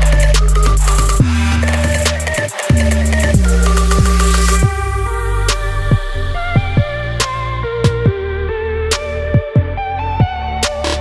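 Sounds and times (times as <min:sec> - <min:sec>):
heavy bass: 0:00.0 - 0:11.0
held synth notes: 0:00.0 - 0:11.0
kick drum thumping: 0:05.9 - 0:08.2.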